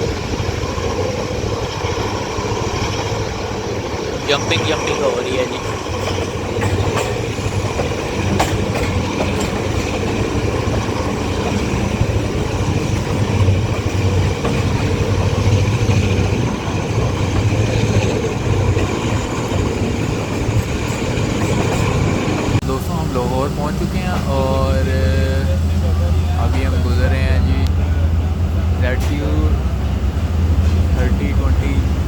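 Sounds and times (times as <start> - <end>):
clickety-clack of rail joints: 0.0 - 22.6, 28.9 - 32.0
train wheels rumbling on rails: 0.0 - 32.0
sharp knocks of train coach: 5.6 - 22.6.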